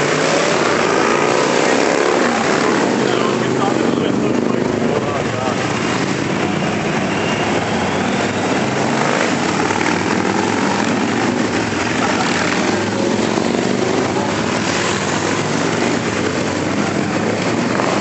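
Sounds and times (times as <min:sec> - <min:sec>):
motorcycles riding past: 0:00.0 - 0:18.0.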